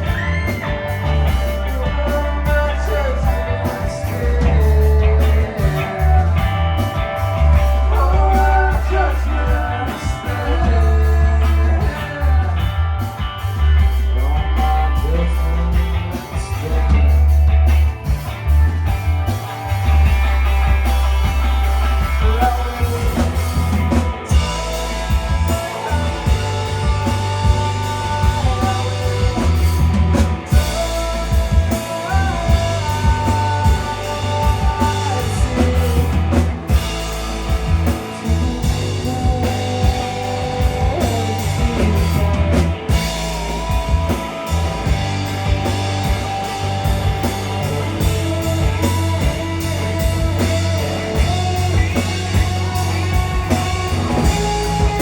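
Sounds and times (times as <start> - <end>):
drums: 0.0 - 55.0
electric guitar: 0.0 - 55.0
heavy bass line: 0.0 - 55.0.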